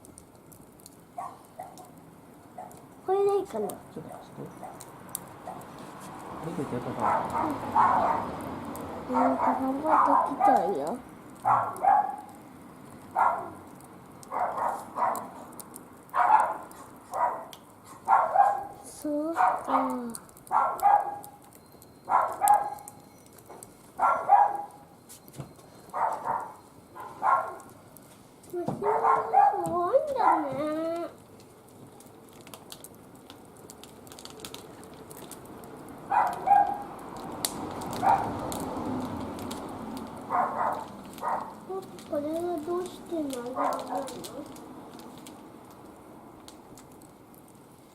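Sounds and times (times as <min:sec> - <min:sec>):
wood fire crackling in a grill: 0:00.0 - 0:47.9
dog barking: 0:01.2 - 0:02.0, 0:02.6 - 0:02.8, 0:05.4 - 0:05.7, 0:07.0 - 0:08.3, 0:09.1 - 0:10.6, 0:11.4 - 0:12.3, 0:13.2 - 0:13.6, 0:14.3 - 0:15.4, 0:16.1 - 0:18.8, 0:19.4 - 0:21.4, 0:22.1 - 0:22.9, 0:24.0 - 0:24.8, 0:25.9 - 0:27.7, 0:28.8 - 0:30.5, 0:36.1 - 0:36.9, 0:38.0 - 0:38.4, 0:40.3 - 0:41.6, 0:43.5 - 0:44.2.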